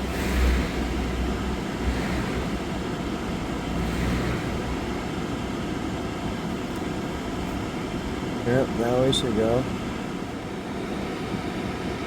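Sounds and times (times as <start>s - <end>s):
low rumble: 0.0s - 8.2s
vehicle idling hum: 0.0s - 12.0s.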